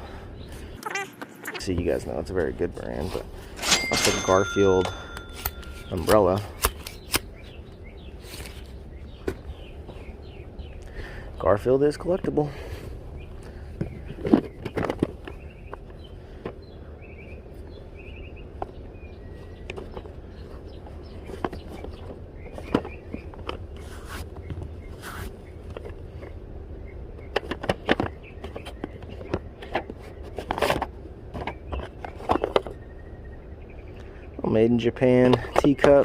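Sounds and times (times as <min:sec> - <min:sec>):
steady low hum: 0:00.0 - 0:35.5
knocks clicks and scrapes of objects: 0:13.4 - 0:16.6, 0:27.2 - 0:32.8.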